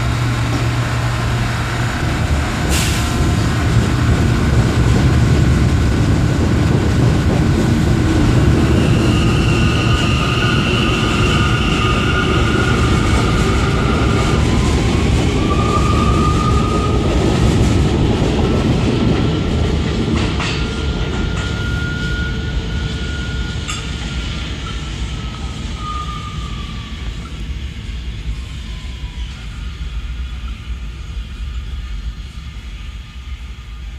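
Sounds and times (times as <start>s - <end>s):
subway train wheels rumbling: 0.0s - 33.9s.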